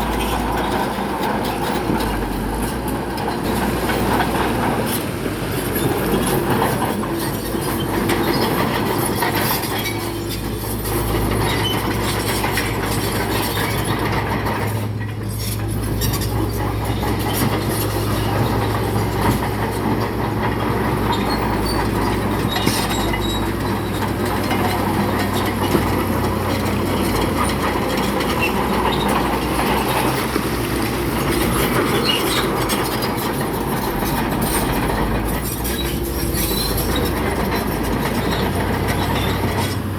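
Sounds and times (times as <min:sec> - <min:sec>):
bulldozer diesel engine: 0:00.0 - 0:39.9
steel tracks clanking: 0:00.0 - 0:39.9.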